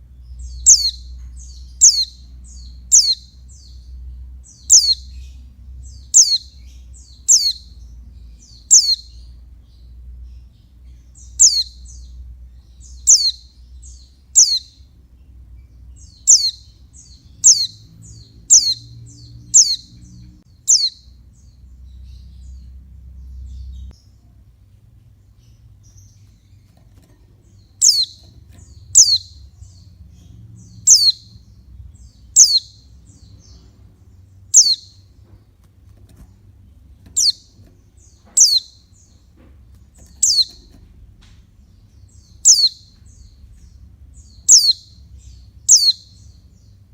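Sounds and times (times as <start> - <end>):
bird giving sharp high calls: 28.9 - 29.3.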